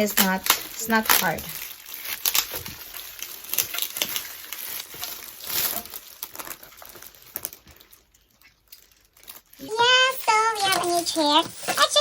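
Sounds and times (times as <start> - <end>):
rustling of chair parts: 0.0 - 9.6.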